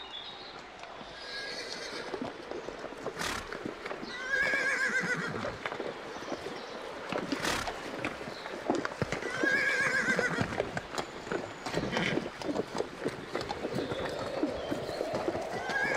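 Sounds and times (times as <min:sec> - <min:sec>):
horse whinnying: 0:01.2 - 0:02.2, 0:04.1 - 0:05.6, 0:09.2 - 0:10.7, 0:15.5 - 0:15.9.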